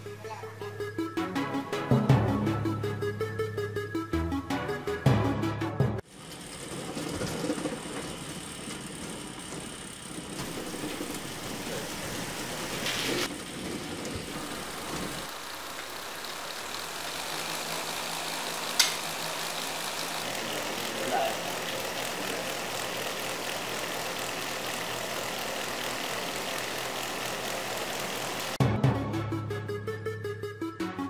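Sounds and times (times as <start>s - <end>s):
small electric motor running: 6.0s - 28.6s.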